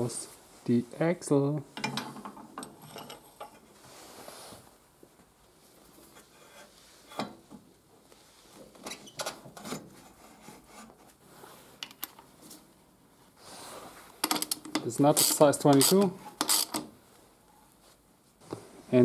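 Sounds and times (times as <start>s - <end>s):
faint metal scraping: 6.0s - 7.3s.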